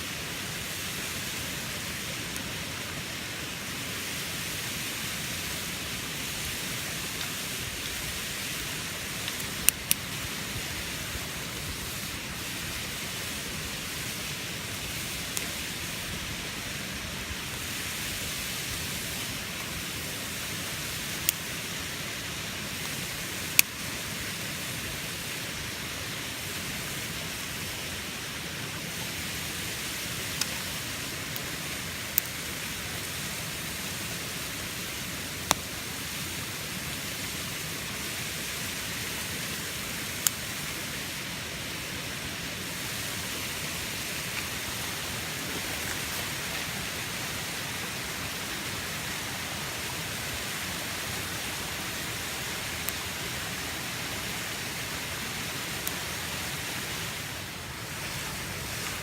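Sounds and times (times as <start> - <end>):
bacon and eggs sizzling: 6.2 - 24.6, 28.5 - 41.0.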